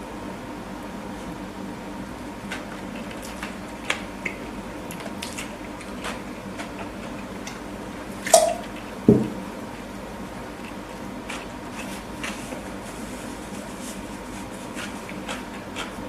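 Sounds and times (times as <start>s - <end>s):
wet chewing: 2.4s - 9.0s, 10.5s - 16.0s.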